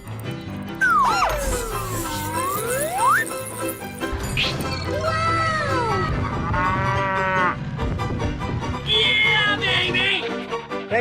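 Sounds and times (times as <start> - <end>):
background music: 0.0 - 11.0
cartoon sound effect glide: 0.8 - 3.6.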